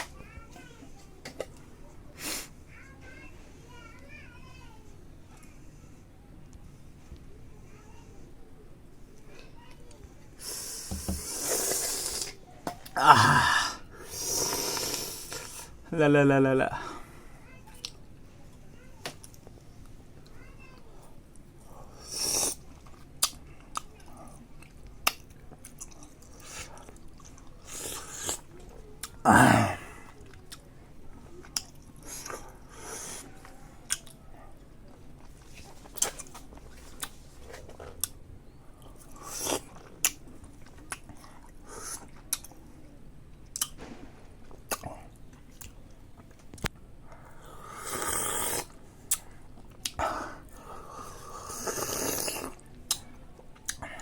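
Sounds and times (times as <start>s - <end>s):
person chewing berries: 10.5s - 15.8s, 21.9s - 30.7s, 31.4s - 33.3s, 33.9s - 34.2s, 34.9s - 38.2s, 38.8s - 42.6s, 43.4s - 43.8s, 44.5s - 54.0s
wet mouth clicks and smacks: 23.2s - 23.9s, 43.5s - 43.8s, 48.4s - 50.0s.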